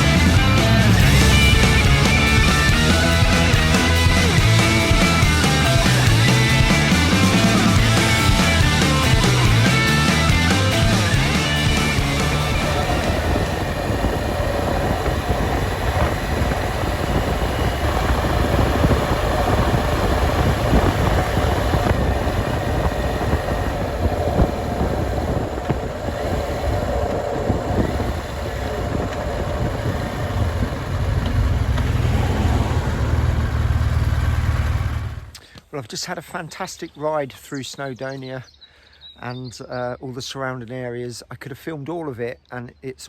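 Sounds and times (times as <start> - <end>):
wind rush: 0.0 - 35.3
motorcycle engine rumble: 0.0 - 35.4.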